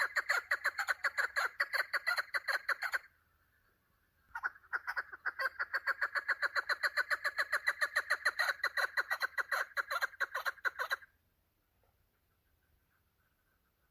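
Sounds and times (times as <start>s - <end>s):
partridge calling: 0.0s - 11.1s.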